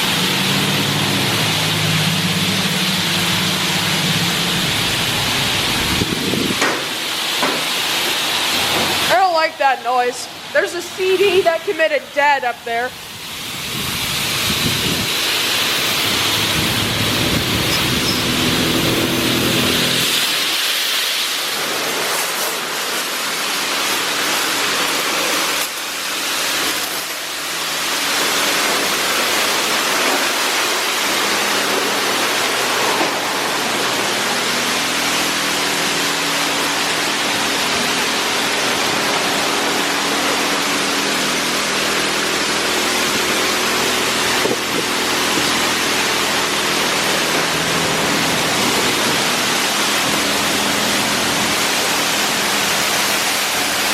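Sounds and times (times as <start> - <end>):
low machinery hum: 0.0 - 20.6, 27.6 - 53.9
water jets spraying on car: 0.0 - 53.9.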